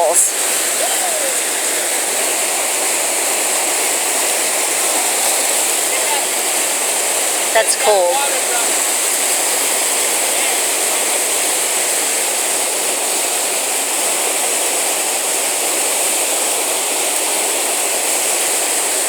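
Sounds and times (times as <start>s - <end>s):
whitewater rapids rushing: 0.0s - 19.0s.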